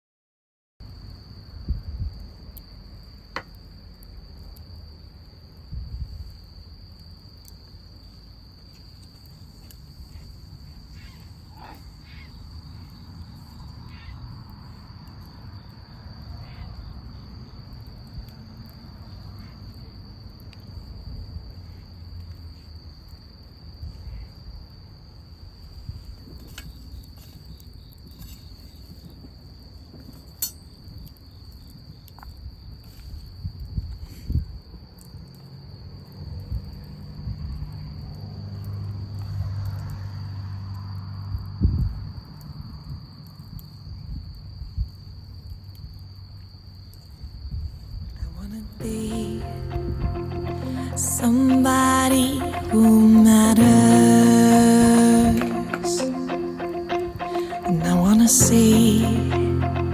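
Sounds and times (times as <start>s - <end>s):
crickets trilling: 0.8s - 59.9s
low rumble: 48.8s - 59.9s.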